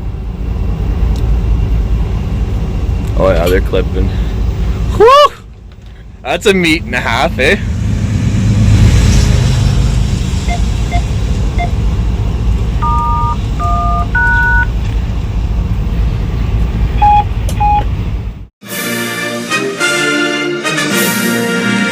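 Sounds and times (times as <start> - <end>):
locomotive cab rumble: 9.8 - 18.5
touch-tone beeps: 12.8 - 14.7, 17.0 - 17.8
orchestral music: 18.6 - 21.9.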